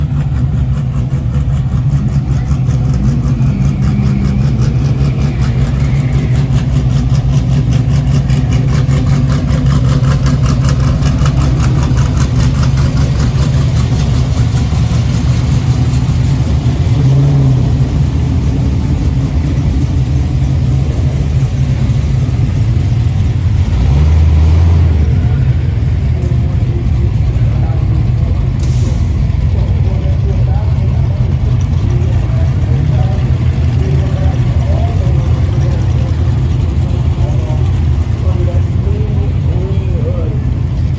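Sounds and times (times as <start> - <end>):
car engines idling: 0.0 - 40.9
engine revving: 0.0 - 40.9.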